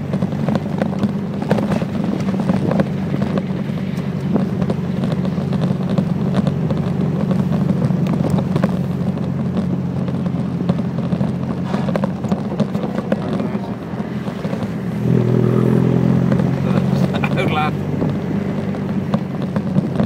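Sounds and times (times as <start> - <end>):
car engine running: 0.0 - 20.0
road noise: 0.0 - 20.0.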